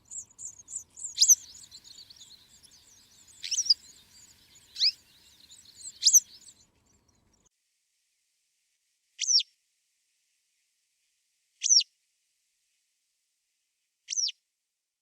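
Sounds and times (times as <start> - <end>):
songbird call: 0.0 - 7.5.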